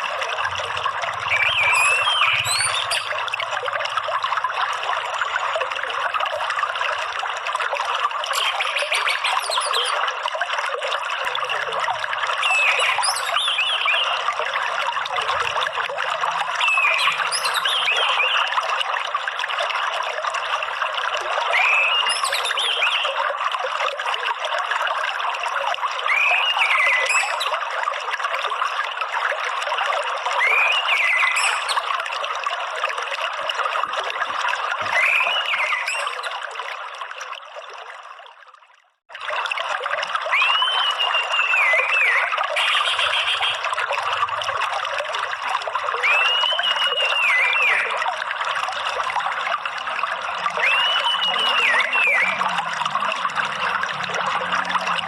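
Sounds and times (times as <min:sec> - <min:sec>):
trickling water: 0:00.0 - 0:55.0
whistled thrush call: 0:01.3 - 0:03.2, 0:08.4 - 0:10.0, 0:12.4 - 0:14.2, 0:16.6 - 0:18.5, 0:21.5 - 0:23.2, 0:26.1 - 0:27.6, 0:30.4 - 0:31.8, 0:34.9 - 0:36.2, 0:40.3 - 0:43.6, 0:46.0 - 0:48.0, 0:50.6 - 0:52.4.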